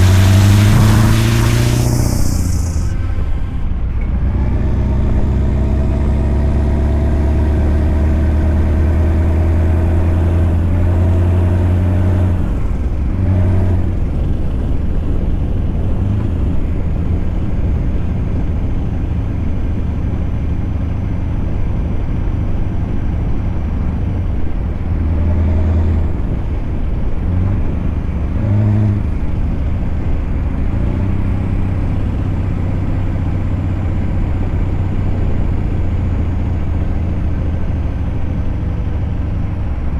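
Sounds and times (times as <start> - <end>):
truck engine running under load: 0.0 - 10.8.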